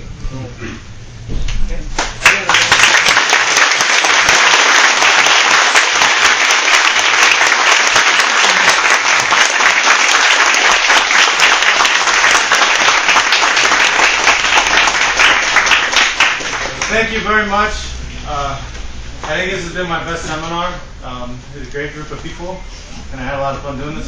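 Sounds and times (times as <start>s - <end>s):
people applauding: 2.0s - 17.3s.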